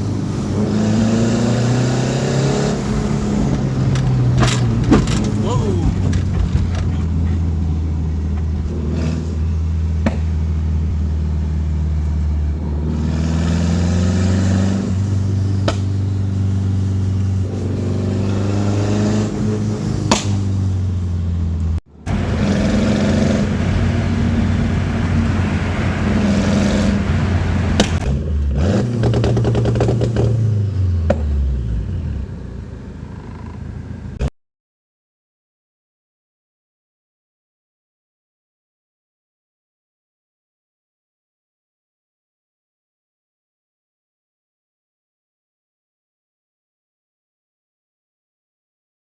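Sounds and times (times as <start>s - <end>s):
car engine revving: 0.0s - 34.3s.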